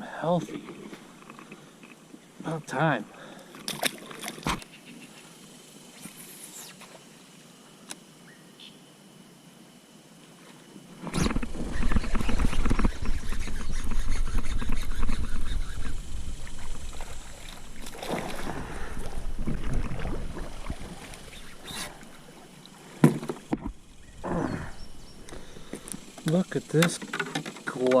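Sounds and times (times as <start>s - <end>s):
water splashing around kayak: 11.3s - 23.9s.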